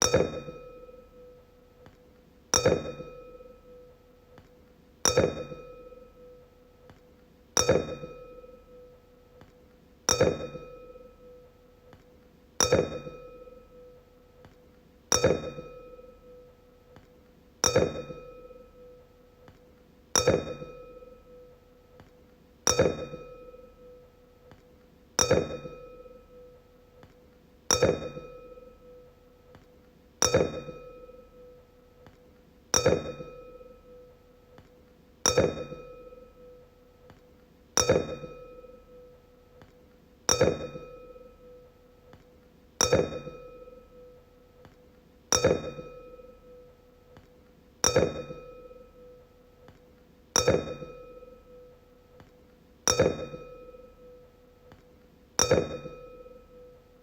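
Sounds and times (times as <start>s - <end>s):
wine glass struck ringing: 0.0s - 1.3s, 2.6s - 3.8s, 5.1s - 6.3s, 10.1s - 11.4s, 12.6s - 13.9s, 15.1s - 16.4s, 27.7s - 29.0s, 32.8s - 34.1s, 35.3s - 36.6s, 37.8s - 39.1s, 40.3s - 41.6s, 42.8s - 44.2s, 45.3s - 46.7s, 47.8s - 49.2s, 50.4s - 51.8s, 52.9s - 54.2s, 55.4s - 56.8s.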